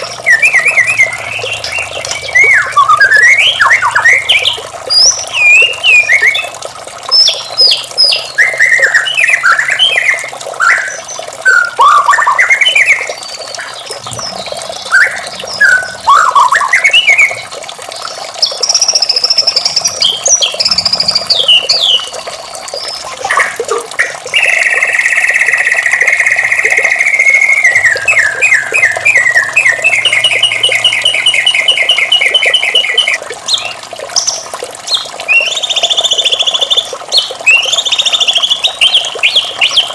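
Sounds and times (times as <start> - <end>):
bird singing whistled song: 0.2 - 6.5, 7.2 - 14.3, 14.9 - 17.4, 22.8 - 34.4, 35.3 - 39.9
bird fast trill: 22.9 - 33.2.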